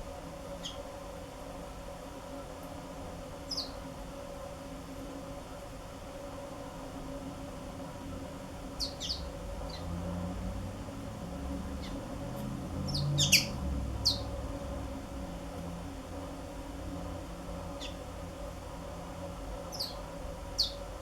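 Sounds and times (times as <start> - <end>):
steady low hum: 0.0 - 21.0
bird chirp calls: 8.8 - 9.8, 12.9 - 14.3.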